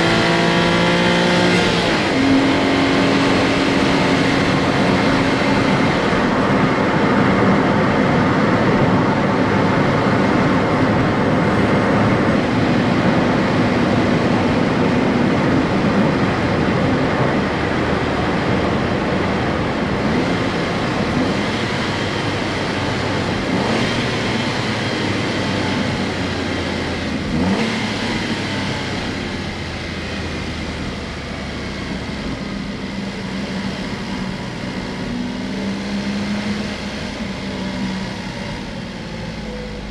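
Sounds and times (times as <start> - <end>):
car engine running: 0.0 - 39.9
road noise: 0.0 - 39.9.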